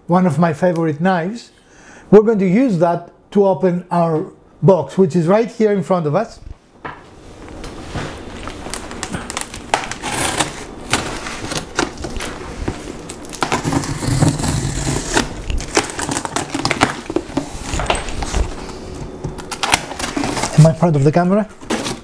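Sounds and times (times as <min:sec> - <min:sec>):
cardboard rustling: 0:07.5 - 0:22.0
tape tearing: 0:08.4 - 0:18.6, 0:19.4 - 0:20.8, 0:21.6 - 0:22.0
knife slitting packing tape: 0:09.2 - 0:12.4, 0:13.0 - 0:17.0.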